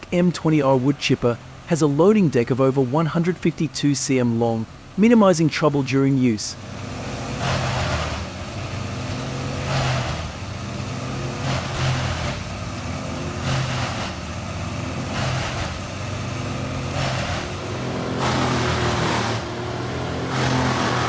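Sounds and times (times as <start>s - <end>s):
wood chipper engine running: 6.5s - 21.0s.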